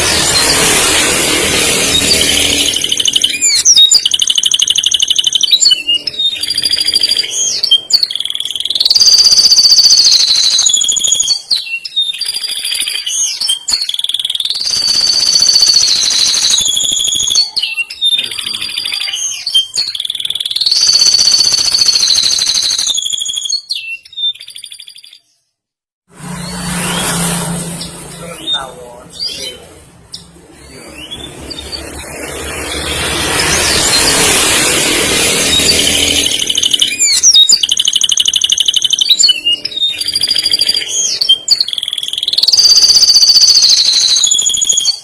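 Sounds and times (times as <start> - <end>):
canary singing trills and whistles: 0.0 - 25.5, 27.8 - 45.0
sharp bird clicks: 2.1 - 5.8, 6.4 - 17.6, 19.7 - 23.7, 35.8 - 45.0.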